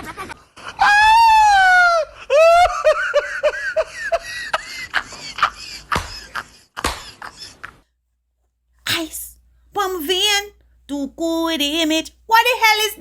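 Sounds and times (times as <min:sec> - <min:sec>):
person laughing in high bursts: 0:00.0 - 0:07.8.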